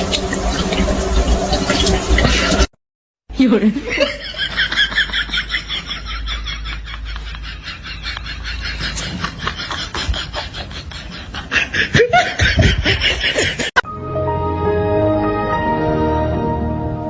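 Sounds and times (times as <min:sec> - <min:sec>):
laughter in short bursts: 0:05.1 - 0:13.8.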